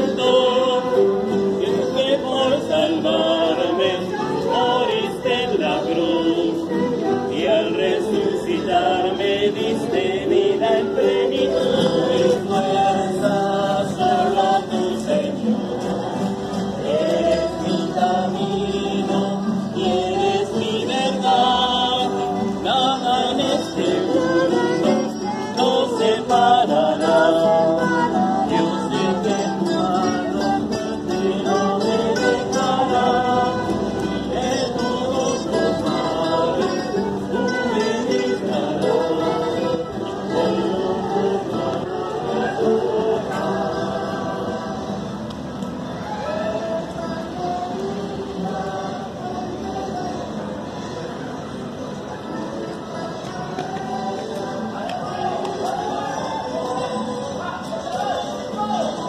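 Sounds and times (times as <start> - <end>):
group singing a hymn: 0.0 - 45.6, 46.2 - 50.9
strummed acoustic guitars: 0.0 - 46.0.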